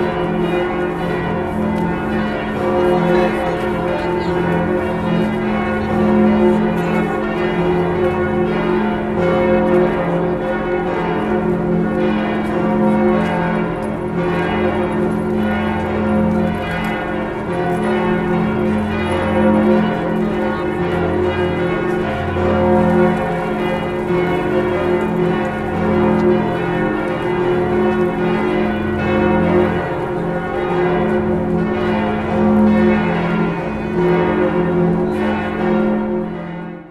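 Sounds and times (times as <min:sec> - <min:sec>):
church bells pealing: 0:00.0 - 0:36.9.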